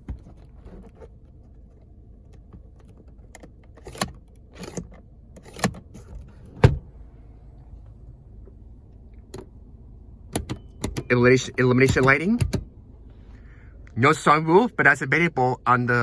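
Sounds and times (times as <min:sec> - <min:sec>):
car engine idling: 0:06.3 - 0:14.4.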